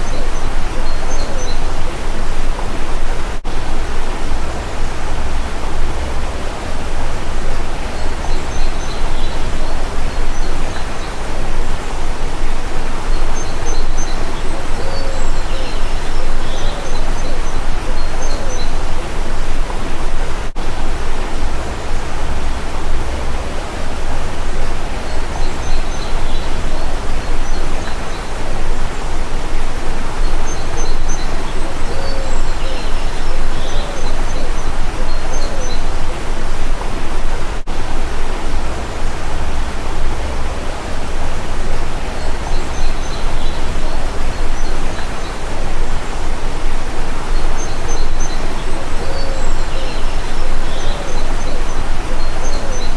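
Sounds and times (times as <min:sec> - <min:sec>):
small birds chirping: 0:00.0 - 0:52.9
stream flowing: 0:00.0 - 0:52.9.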